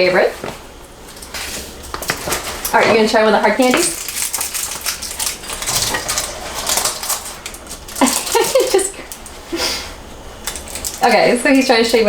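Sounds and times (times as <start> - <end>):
candy wrapper crinkling: 3.6 - 9.4, 10.4 - 11.8.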